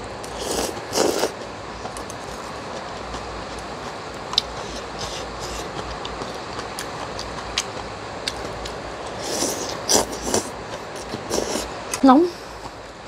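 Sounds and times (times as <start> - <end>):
slurping noodles: 0.3 - 2.5, 4.4 - 6.4, 9.1 - 11.7.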